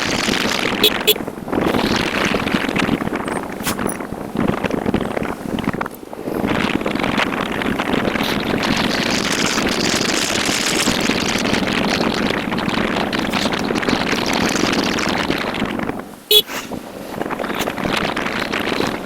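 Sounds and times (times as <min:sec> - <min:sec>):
motorcycle engine: 0:00.0 - 0:03.0
wind and road noise: 0:00.0 - 0:19.0.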